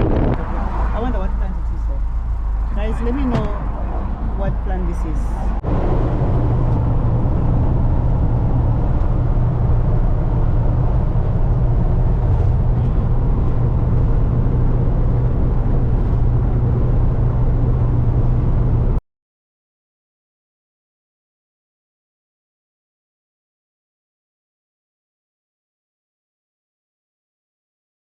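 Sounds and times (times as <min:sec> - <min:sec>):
car engine droning: 0:00.0 - 0:19.0
road noise: 0:00.0 - 0:19.0.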